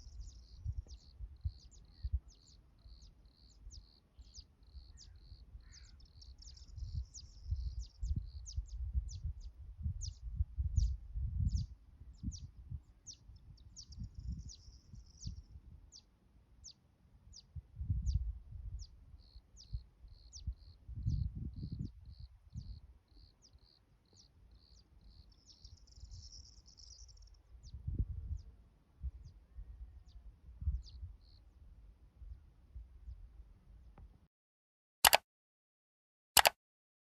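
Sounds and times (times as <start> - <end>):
small birds chirping: 0.0 - 31.5.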